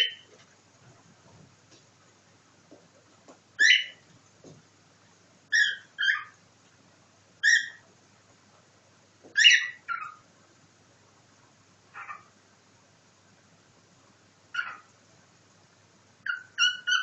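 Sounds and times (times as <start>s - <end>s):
cockatiel calls: 0.0s - 0.3s, 3.6s - 4.0s, 5.5s - 6.4s, 7.4s - 7.8s, 9.4s - 10.2s, 11.9s - 12.3s, 14.5s - 14.9s, 16.2s - 17.0s.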